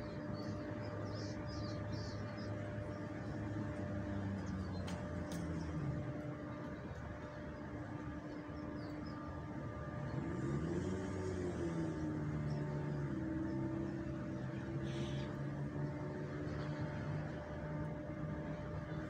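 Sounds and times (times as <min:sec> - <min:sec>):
vehicle engine speeding up: 0:09.7 - 0:19.0.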